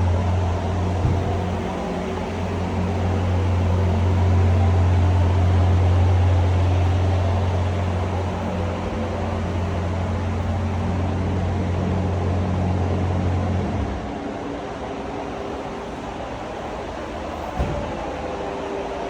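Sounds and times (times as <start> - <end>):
car engine idling: 0.0 - 13.6, 14.7 - 19.0.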